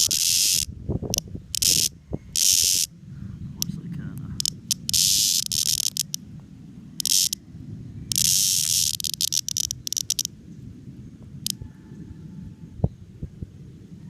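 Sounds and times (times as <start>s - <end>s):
cicada buzzing distress calls: 0.0s - 3.0s, 4.3s - 6.2s, 7.0s - 7.4s, 8.1s - 10.4s.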